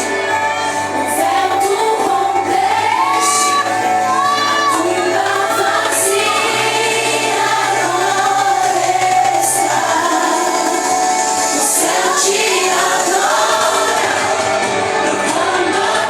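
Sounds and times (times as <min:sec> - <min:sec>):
group singing worship song: 0:00.0 - 0:16.0.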